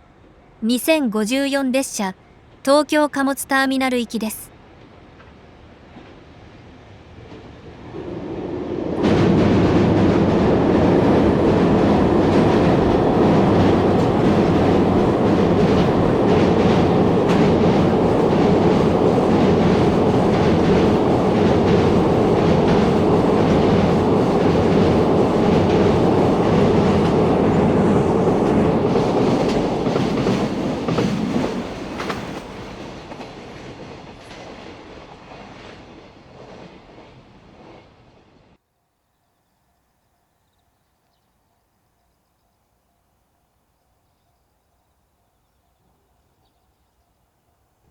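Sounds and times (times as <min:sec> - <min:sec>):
freight train passing: 0:04.8 - 0:38.5.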